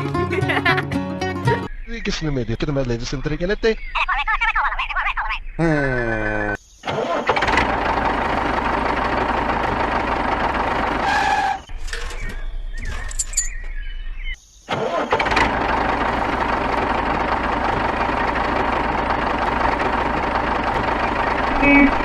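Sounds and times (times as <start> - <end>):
engine humming: 5.5 - 22.0.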